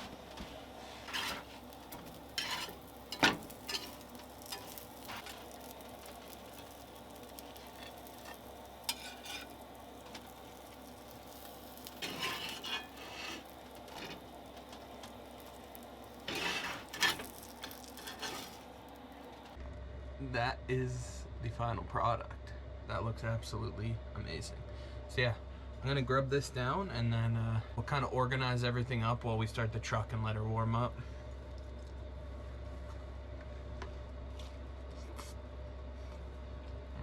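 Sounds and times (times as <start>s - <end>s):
food sizzling in a pan: 0.0s - 19.4s
utensil scraping a pan: 0.8s - 6.8s, 7.4s - 14.2s, 16.2s - 18.7s.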